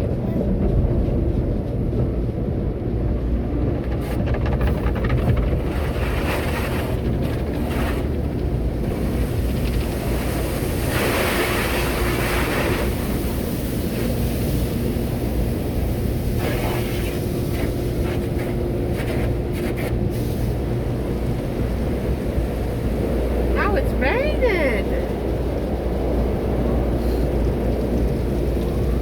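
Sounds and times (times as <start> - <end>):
low rumble of machinery: 0.0 - 29.0
car wash spray hissing: 8.8 - 23.8.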